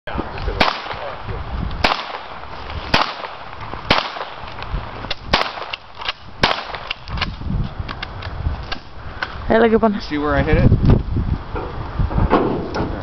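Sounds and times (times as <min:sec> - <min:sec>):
gunshots with echo: 0:00.6 - 0:04.5, 0:05.3 - 0:05.8, 0:06.4 - 0:06.9.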